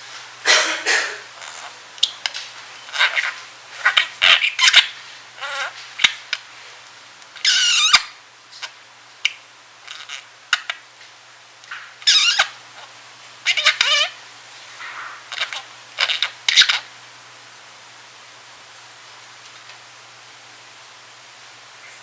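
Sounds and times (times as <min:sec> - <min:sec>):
budgerigar chirping and warbling: 0:01.4 - 0:02.2, 0:02.8 - 0:06.2, 0:07.4 - 0:08.1, 0:12.0 - 0:12.6, 0:13.5 - 0:14.2, 0:14.9 - 0:16.9.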